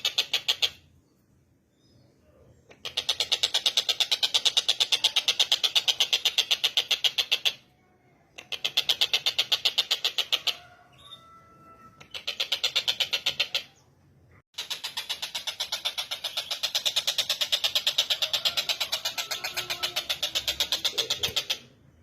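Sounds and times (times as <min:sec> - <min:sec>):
kingfisher rattling call: 0:14.6 - 0:21.7.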